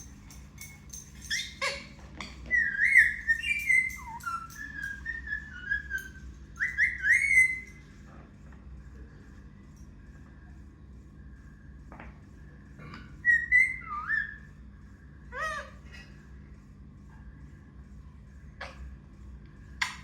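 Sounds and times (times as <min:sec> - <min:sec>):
parrot clicks and chatter: 0:00.1 - 0:07.8
parrot whistling: 0:02.5 - 0:07.8, 0:13.2 - 0:14.5.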